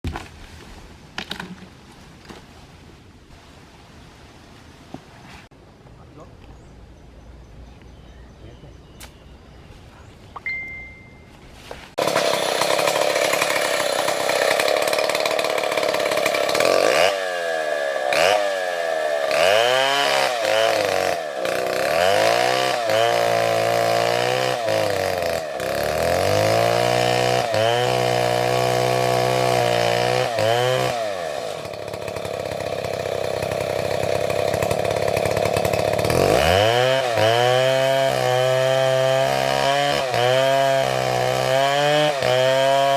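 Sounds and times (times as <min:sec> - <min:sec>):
chainsaw cutting wood: 0:11.9 - 0:42.9.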